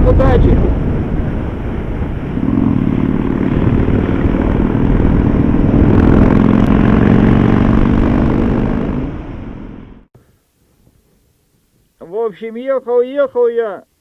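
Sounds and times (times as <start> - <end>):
motorcycle engine running: 1.2 - 10.1.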